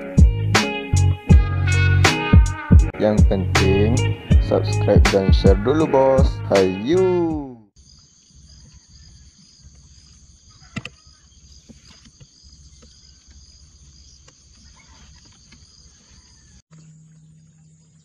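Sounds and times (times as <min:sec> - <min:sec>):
insects buzzing: 0:07.8 - 0:18.0.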